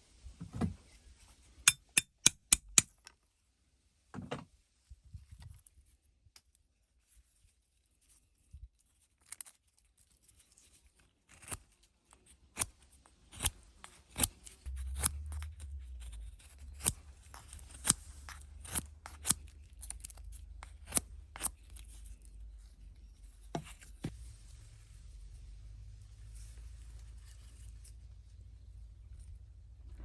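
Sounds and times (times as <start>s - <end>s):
low rumble: 14.7s - 18.6s, 24.1s - 30.0s.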